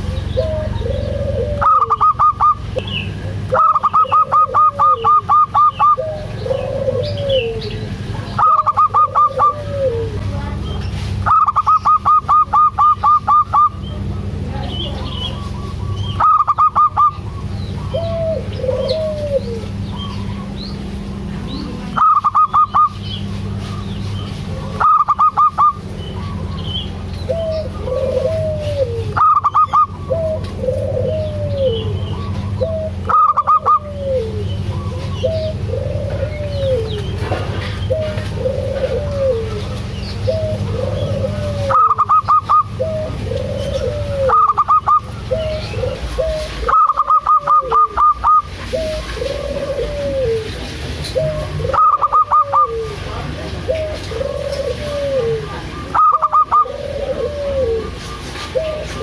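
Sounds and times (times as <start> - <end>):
dove cooing: 0.0 - 59.0
steady low hum: 0.0 - 59.0
rapid pulsed bird trill: 22.0 - 23.2.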